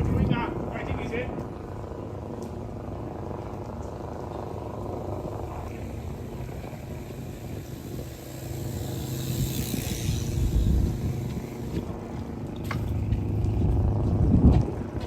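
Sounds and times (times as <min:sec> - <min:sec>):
traffic rumble: 0:00.0 - 0:15.0
vehicle hiss passing: 0:05.5 - 0:12.3.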